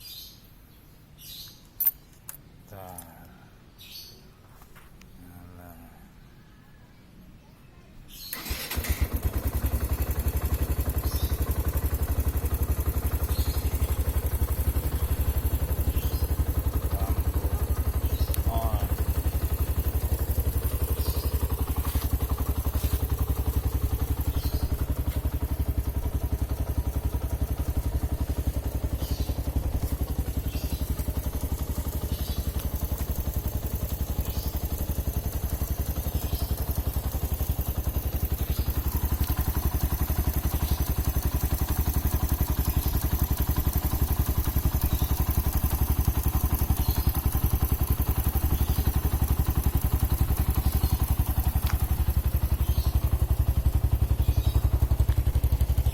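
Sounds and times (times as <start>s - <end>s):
motorcycle engine idling: 8.3s - 55.9s.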